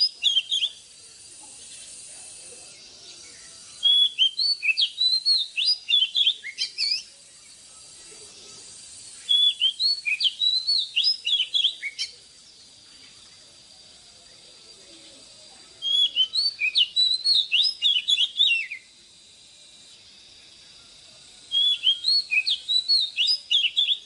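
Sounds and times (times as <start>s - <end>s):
bird singing whistled notes: 0.0s - 0.9s, 2.7s - 13.2s, 15.2s - 19.0s, 21.4s - 24.0s.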